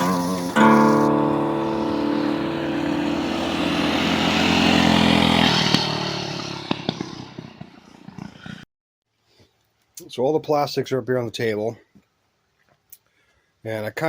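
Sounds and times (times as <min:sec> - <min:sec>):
scooter engine running: 0:00.0 - 0:08.4.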